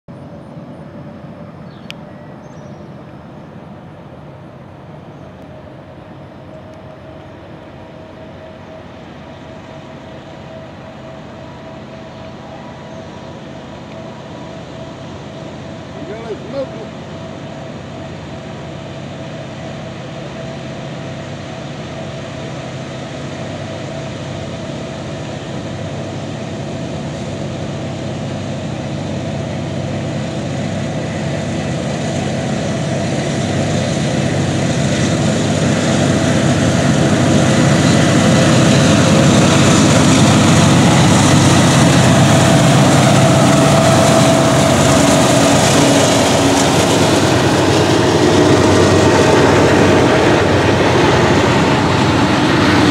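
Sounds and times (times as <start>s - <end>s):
diesel locomotive engine rumble: 0.1s - 52.9s
wheel-on-rail noise: 22.6s - 52.9s.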